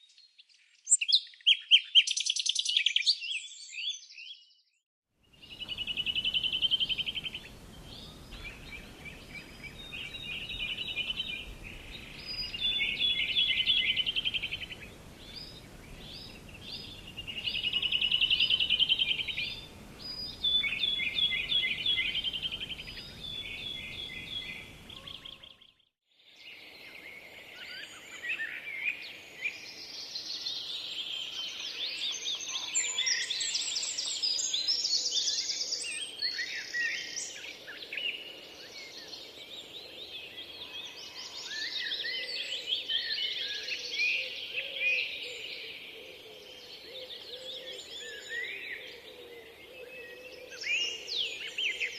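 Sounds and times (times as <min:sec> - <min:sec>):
songbirds chorus: 0:05.3 - 0:51.9
bird singing fast trill: 0:05.4 - 0:25.9.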